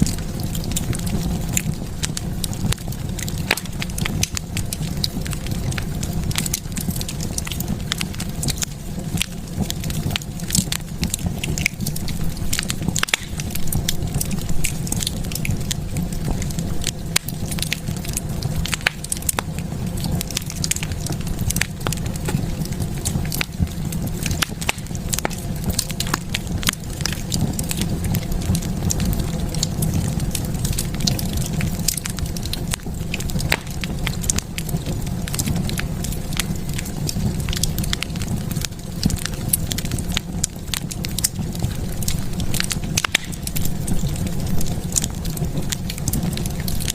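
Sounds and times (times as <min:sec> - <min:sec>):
fire crackling: 0:00.0 - 0:46.9.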